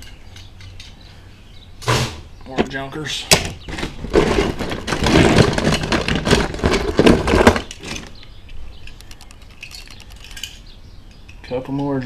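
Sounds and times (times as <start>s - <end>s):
toy cars clattering: 3.8s - 8.2s, 8.8s - 10.7s.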